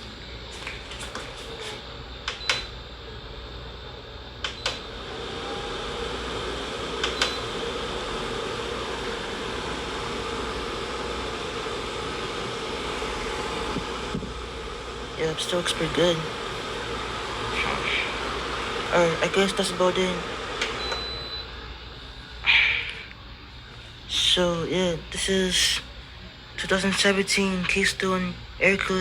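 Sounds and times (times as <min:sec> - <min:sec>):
air cooler fan running: 0:00.0 - 0:29.0
short beeps: 0:20.8 - 0:21.5.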